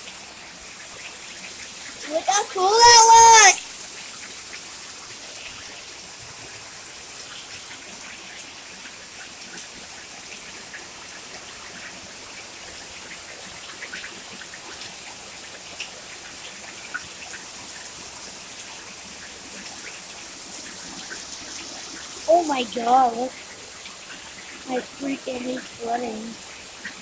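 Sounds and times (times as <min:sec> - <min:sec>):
heavy rain hissing: 0:01.5 - 0:04.3, 0:22.0 - 0:27.0.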